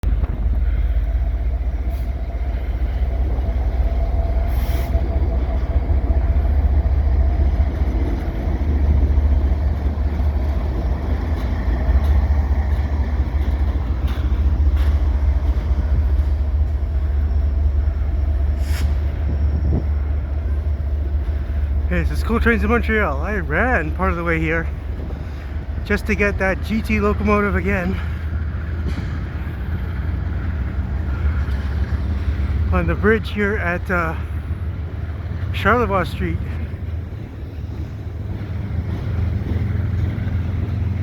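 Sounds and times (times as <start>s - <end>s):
freight train rumbling past: 0.0s - 41.0s
sharp train knocks: 28.6s - 32.6s.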